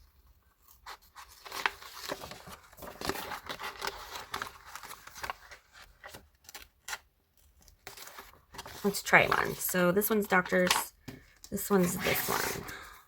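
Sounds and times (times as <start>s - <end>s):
paper rustling: 0.3s - 12.9s.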